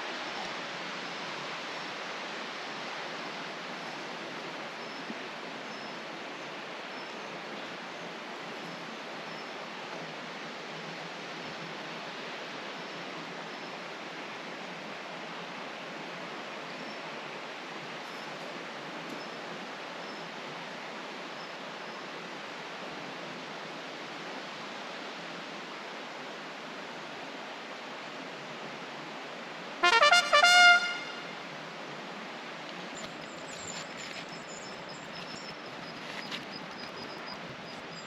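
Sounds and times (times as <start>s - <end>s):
flowing stream: 0.0s - 38.0s
loud pitched call: 29.8s - 31.3s.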